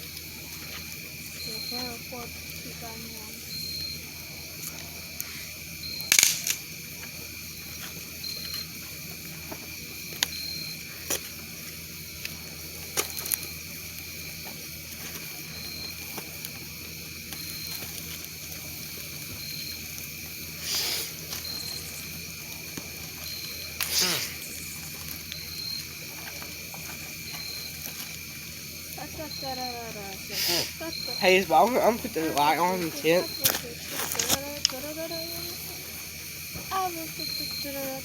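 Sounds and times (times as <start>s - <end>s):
campfire crackling and popping: 0.0s - 38.0s
steady outdoor hiss: 0.0s - 38.0s.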